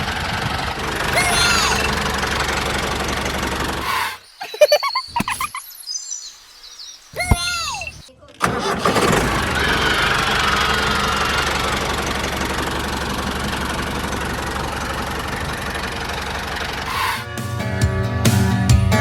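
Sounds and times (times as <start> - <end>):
engine running with rattle: 0.0 - 4.0, 8.4 - 17.5.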